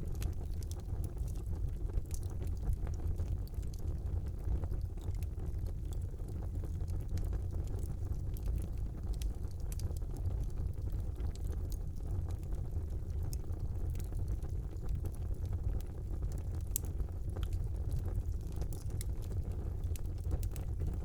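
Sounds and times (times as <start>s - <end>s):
fire low rumble: 0.0s - 21.0s
logs crackling and popping: 0.0s - 21.0s.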